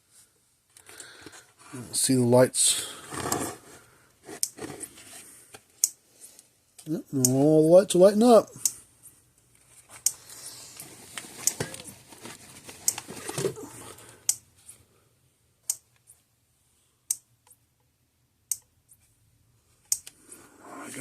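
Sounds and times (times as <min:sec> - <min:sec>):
handling and rustling: 0:02.8 - 0:06.3, 0:09.0 - 0:14.8.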